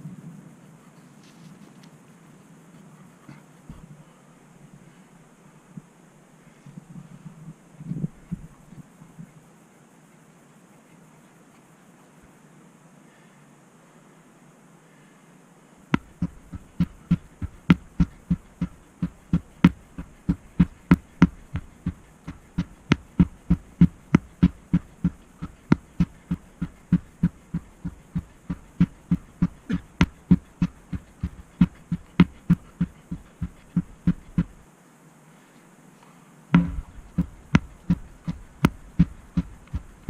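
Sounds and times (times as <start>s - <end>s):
dull thumps with sharp clicks: 16.0s - 34.6s, 36.6s - 40.0s.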